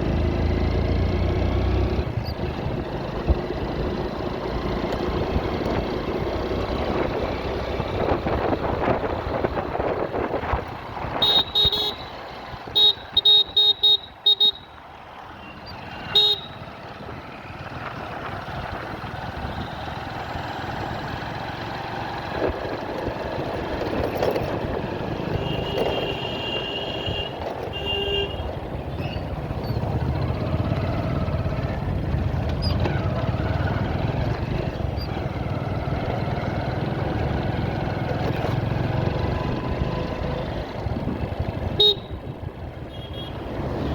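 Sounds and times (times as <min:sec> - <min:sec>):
traffic rumble: 0:00.0 - 0:43.9
vehicle horns honking: 0:11.1 - 0:14.8, 0:15.4 - 0:16.7, 0:25.3 - 0:28.6, 0:41.7 - 0:43.5.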